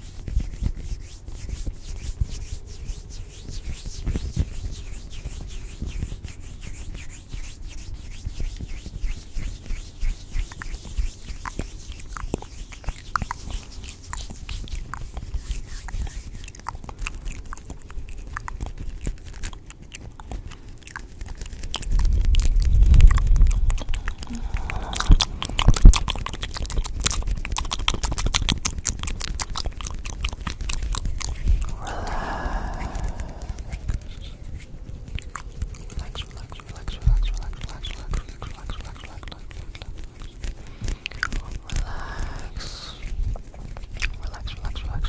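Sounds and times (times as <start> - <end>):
crunching and chewing: 15.9 - 45.0.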